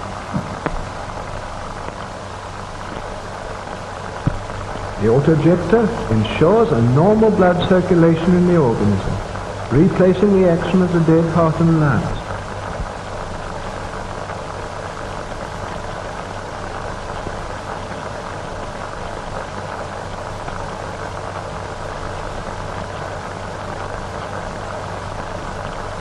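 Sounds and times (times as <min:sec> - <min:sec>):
film soundtrack hiss and crackle: 0:00.0 - 0:26.0
low hum: 0:00.0 - 0:26.0
person narrating: 0:05.0 - 0:12.3.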